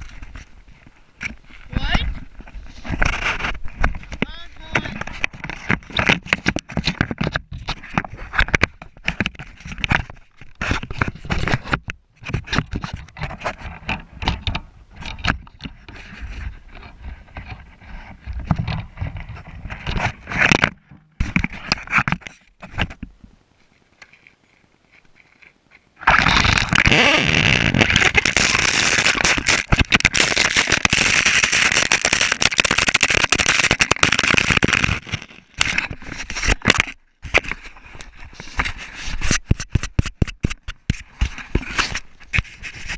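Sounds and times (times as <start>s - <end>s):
rc car scraping over rough ground: 25.8s - 36.8s.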